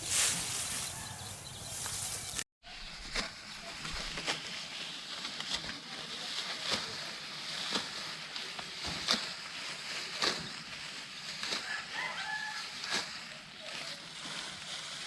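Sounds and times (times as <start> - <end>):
steady outdoor hiss: 0.0 - 2.4
sickle cutting rice stalks: 0.0 - 15.0.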